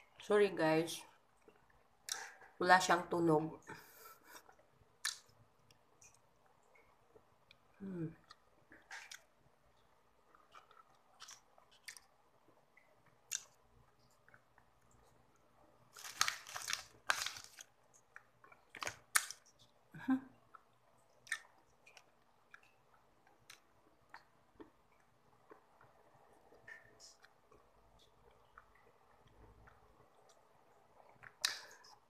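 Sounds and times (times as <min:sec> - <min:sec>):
person chewing chocolate: 0:04.0 - 0:32.0
crackly noises: 0:04.2 - 0:32.0
soft wet clicks: 0:04.6 - 0:15.5, 0:20.5 - 0:32.0.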